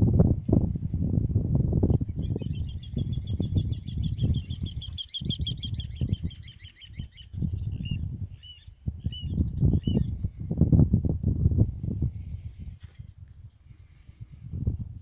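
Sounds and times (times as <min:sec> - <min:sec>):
wind buffeting microphone: 0:00.0 - 0:15.0
bird chirps: 0:01.9 - 0:10.1
songbird trilling: 0:01.9 - 0:10.1.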